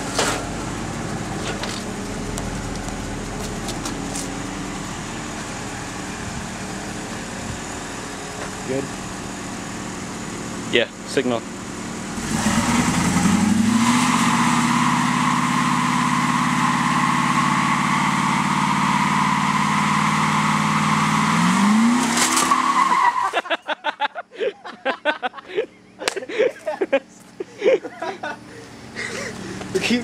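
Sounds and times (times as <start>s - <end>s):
car engine revving: 0.0s - 23.2s.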